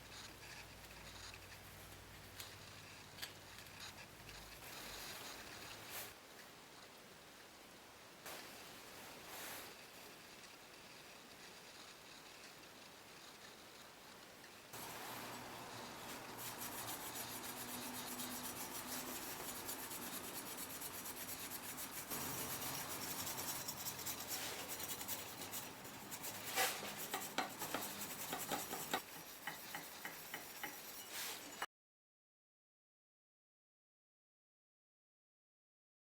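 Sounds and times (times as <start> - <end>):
rubbing on a surface: 14.8 - 31.6.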